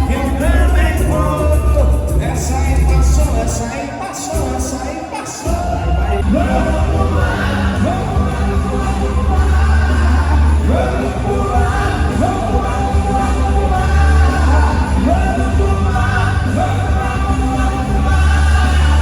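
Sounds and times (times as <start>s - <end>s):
dance music with singing: 0.0s - 19.0s.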